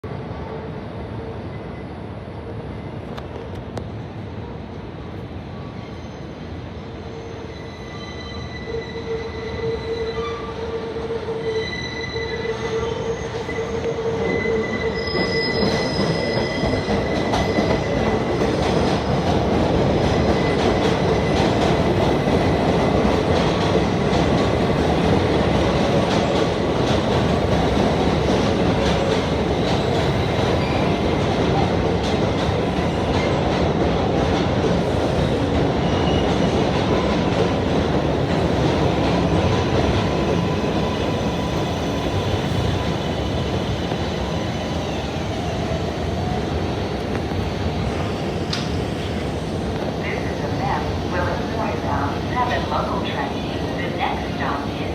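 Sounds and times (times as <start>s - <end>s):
train rumble and clatter on track: 0.0s - 54.9s
train wheels squealing: 5.5s - 21.6s, 28.9s - 31.3s, 34.9s - 36.7s.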